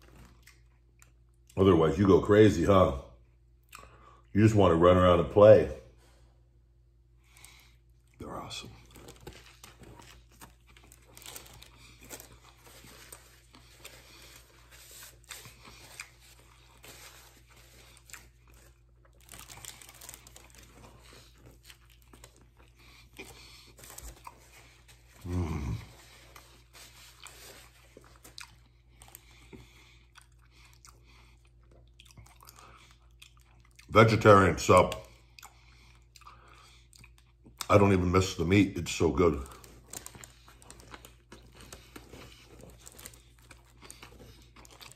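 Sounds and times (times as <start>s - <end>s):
bread crunching and tearing: 0.0s - 1.6s, 7.4s - 44.9s
wet chewing: 0.0s - 1.6s, 8.8s - 33.9s, 34.8s - 37.7s, 39.2s - 44.9s
short low vocal sound: 25.2s - 26.0s.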